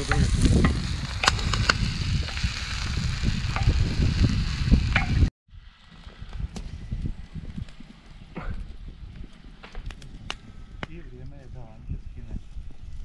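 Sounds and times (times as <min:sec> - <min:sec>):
vegetables sizzling in hot oil: 0:00.0 - 0:05.3.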